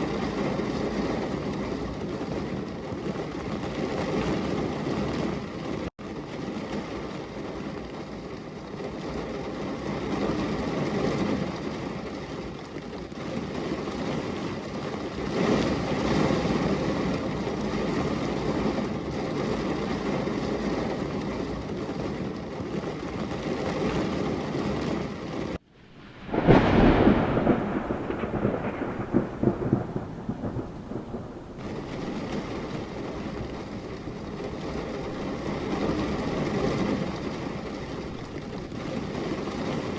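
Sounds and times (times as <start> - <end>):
steady rain: 0.0 - 39.9
low rolling thunder: 13.6 - 39.9
loud close thunderclap: 25.7 - 39.9.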